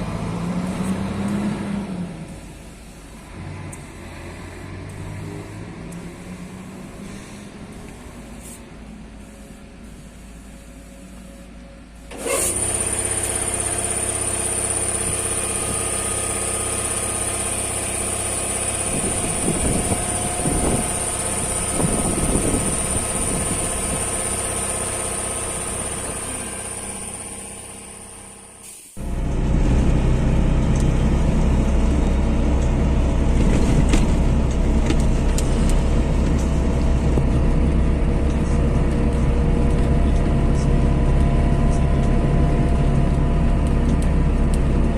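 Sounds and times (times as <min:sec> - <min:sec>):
two-stroke car engine running: 0:12.1 - 0:44.9.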